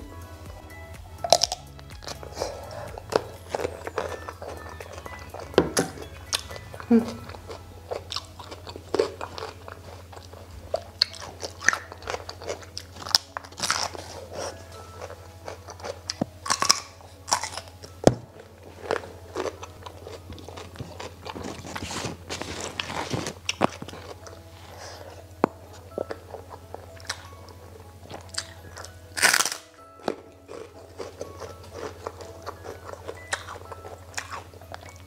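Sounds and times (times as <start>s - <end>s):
wet mouth sounds: 1.2s - 14.6s
crunchy bites and chewing: 1.2s - 35.0s.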